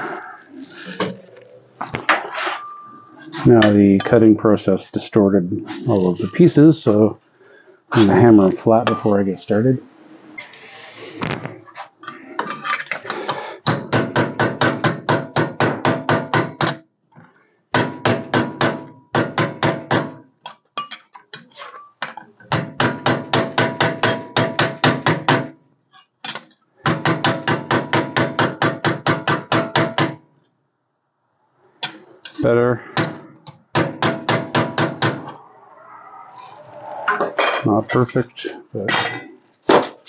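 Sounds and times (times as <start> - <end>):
hammer striking sheet metal: 32.9 - 35.4.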